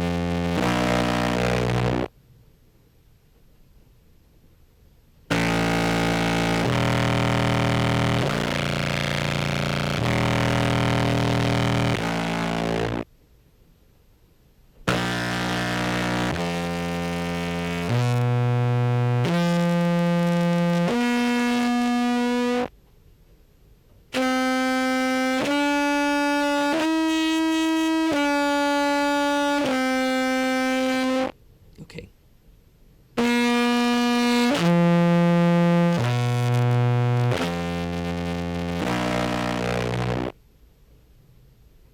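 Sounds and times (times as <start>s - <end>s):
distorted contrabass clarinet notes: 0.0s - 2.1s, 5.3s - 13.0s, 14.9s - 22.7s, 24.2s - 31.3s, 33.2s - 40.3s.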